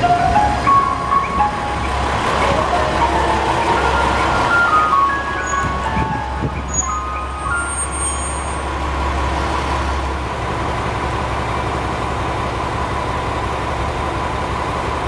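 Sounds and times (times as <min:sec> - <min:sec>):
diesel railcar engine drone: 0:00.0 - 0:15.0.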